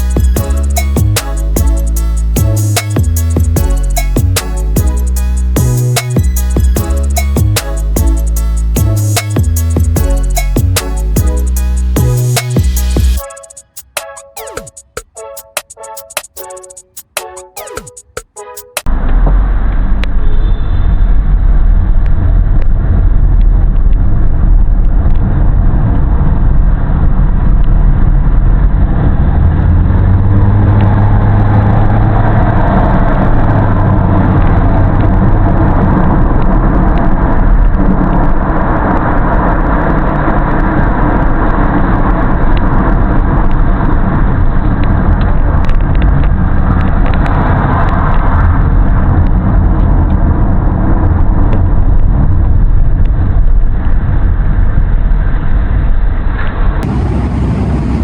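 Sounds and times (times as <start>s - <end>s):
road noise: 28.4s - 58.0s.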